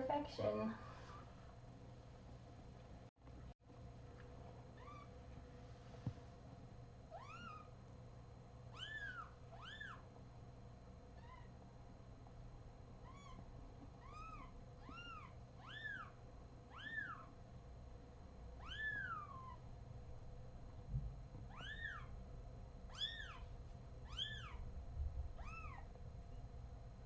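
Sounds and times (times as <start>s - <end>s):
kitten mewing: 18.6s - 19.6s, 21.5s - 22.1s, 25.4s - 25.8s.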